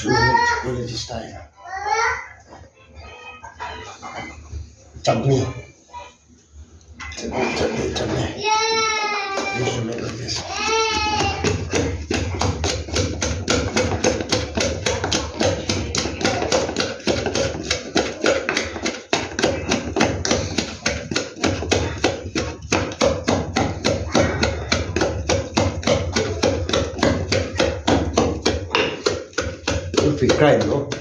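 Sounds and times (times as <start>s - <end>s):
kitchen utensil knocking: 10.7s - 31.0s.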